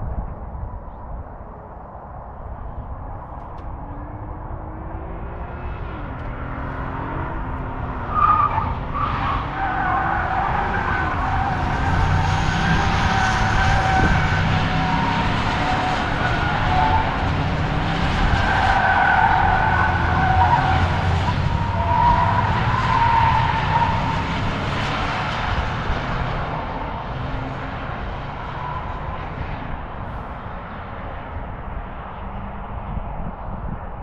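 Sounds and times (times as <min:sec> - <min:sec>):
car tyres squealing: 0:06.4 - 0:29.6.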